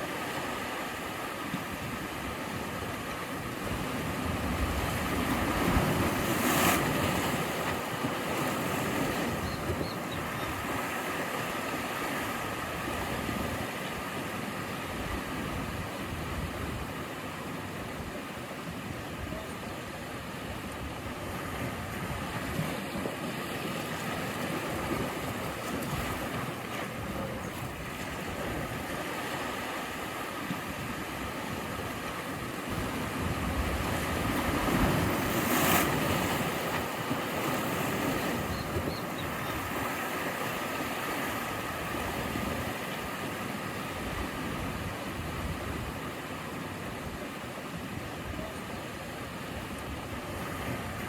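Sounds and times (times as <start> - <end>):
sea waves washing ashore: 0.0 - 51.0.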